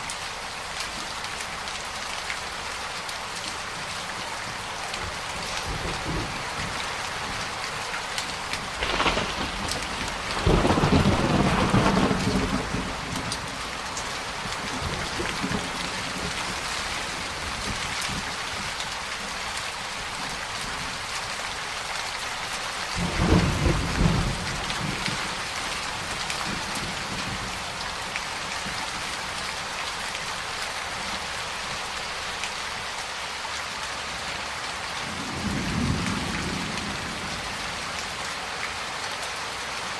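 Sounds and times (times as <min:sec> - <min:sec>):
heavy rain falling: 0:00.0 - 0:39.9
thunder rumbling: 0:08.6 - 0:18.2, 0:23.0 - 0:27.5.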